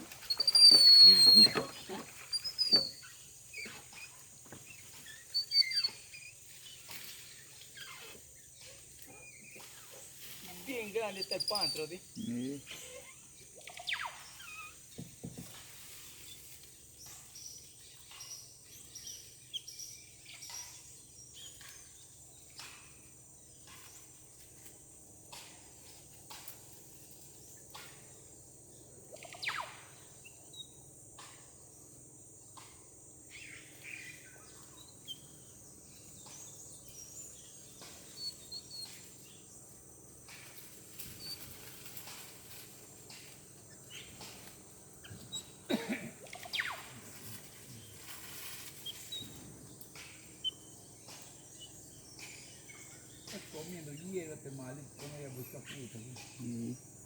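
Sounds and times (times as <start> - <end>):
high-pitched insect drone: 0.2 - 4.3
bird chirps: 0.2 - 10.0, 11.1 - 15.1, 29.1 - 30.8, 33.3 - 39.6, 43.7 - 47.2, 48.8 - 54.3.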